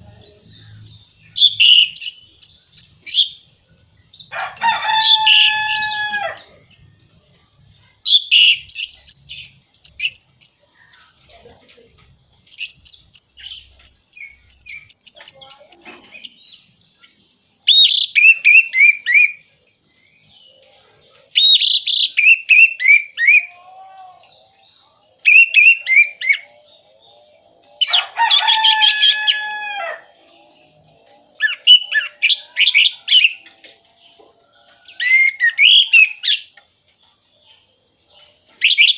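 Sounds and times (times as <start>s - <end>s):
thrush singing whistles and twitters: 0.7s - 3.4s, 8.1s - 10.6s, 12.5s - 16.4s, 17.6s - 19.5s, 21.4s - 23.5s, 25.2s - 28.1s, 31.4s - 33.5s, 34.8s - 36.6s, 38.5s - 38.9s.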